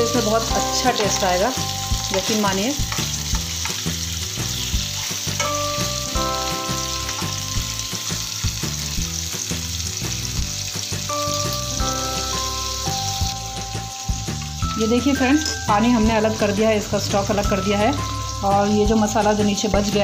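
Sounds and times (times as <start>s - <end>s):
meat sizzling in a pan: 0.0s - 20.0s
metal spoon scraping and tapping pan: 2.0s - 6.1s.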